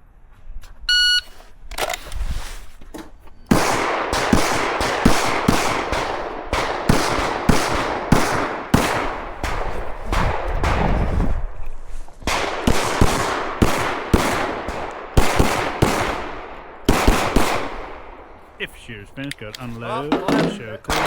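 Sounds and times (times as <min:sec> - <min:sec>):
shot timer beep: 0:00.9 - 0:01.3
pistol shots: 0:03.5 - 0:11.1, 0:12.2 - 0:18.4.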